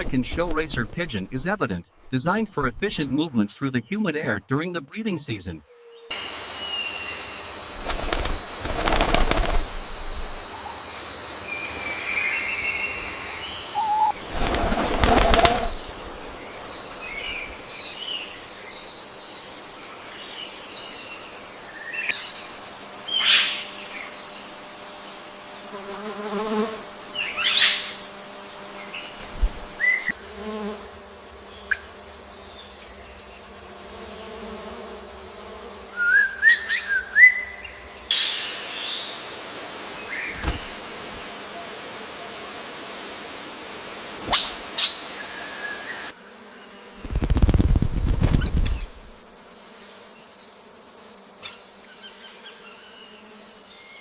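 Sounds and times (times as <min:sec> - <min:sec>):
wings flapping: 0:07.7 - 0:10.5, 0:13.8 - 0:16.4, 0:40.3 - 0:41.2, 0:47.0 - 0:49.2
birds chirping and calling: 0:11.6 - 0:19.4.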